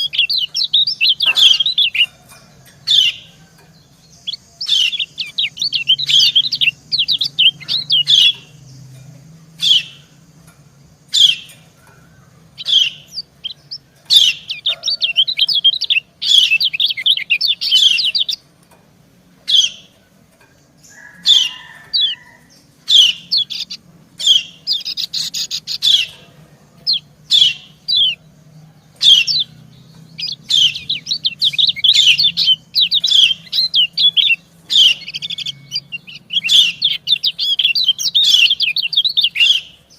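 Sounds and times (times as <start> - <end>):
birds chirping rapid high calls: 0.0 - 39.9.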